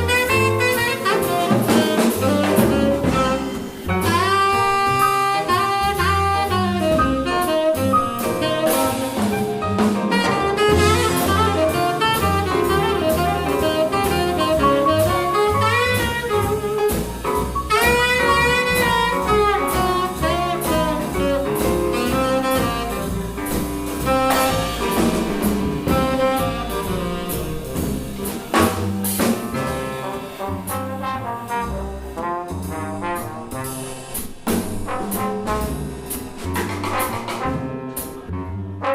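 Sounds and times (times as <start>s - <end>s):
horn playing fast melody: 0.0s - 9.2s, 10.1s - 16.9s, 17.7s - 23.4s, 24.0s - 28.7s
double bass: 0.0s - 38.9s
drum kit with cymbals: 0.0s - 38.9s
piano: 0.0s - 38.9s.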